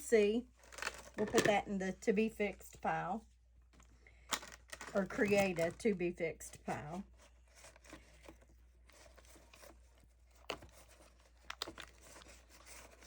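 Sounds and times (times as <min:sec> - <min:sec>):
quiet rustling: 0:03.6 - 0:13.0.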